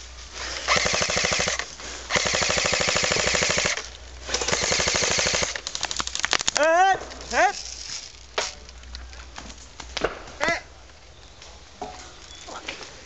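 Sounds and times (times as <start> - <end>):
airsoft gun rapid fire bursts: 0.6 - 5.6.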